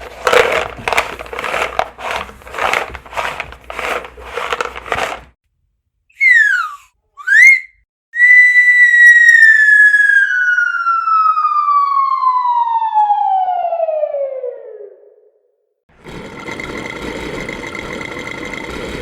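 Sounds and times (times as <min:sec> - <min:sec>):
cartoon whistle sliding in pitch: 0:06.1 - 0:14.8.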